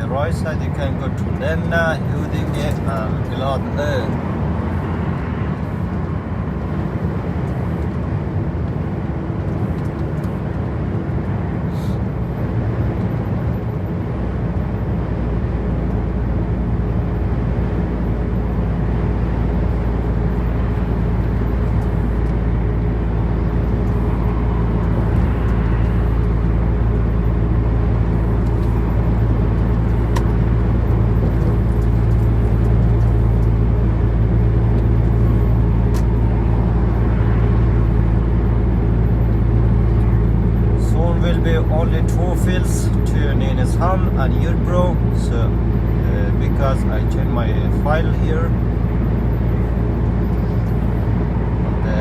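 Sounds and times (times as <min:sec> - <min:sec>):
deep engine hum: 0:00.0 - 0:52.0
truck engine and road noise: 0:00.0 - 0:52.0.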